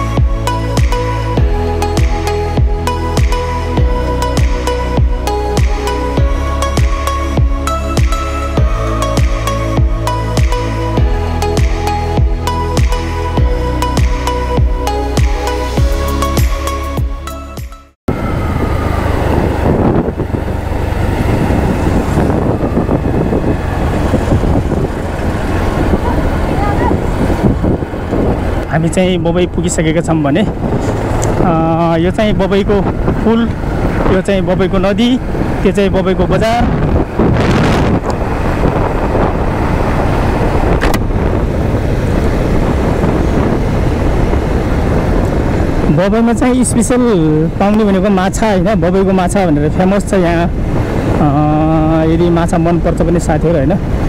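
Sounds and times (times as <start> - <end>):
motorcycle engine: 0.0 - 17.2, 17.8 - 46.0
background music: 0.0 - 19.6
road noise: 0.0 - 54.0
wind rush on microphone: 18.1 - 54.0.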